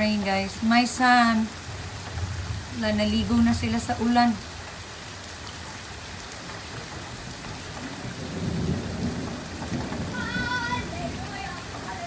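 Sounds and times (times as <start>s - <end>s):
steady rain falling: 0.0s - 12.0s
thunder rumble: 6.7s - 12.0s
child shouting: 10.0s - 12.0s.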